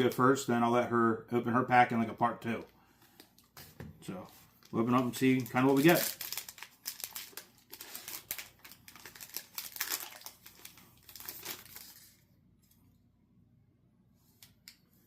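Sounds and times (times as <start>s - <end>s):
wrapper tearing and crinkling: 4.6s - 12.2s.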